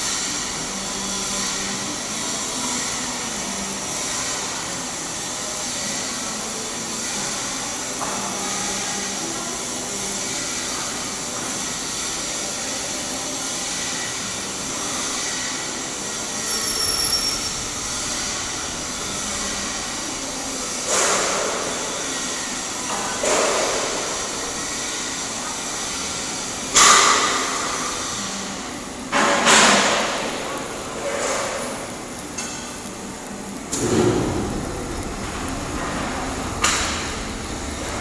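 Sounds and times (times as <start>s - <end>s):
welding arc crackling hiss: 0.0s - 38.0s.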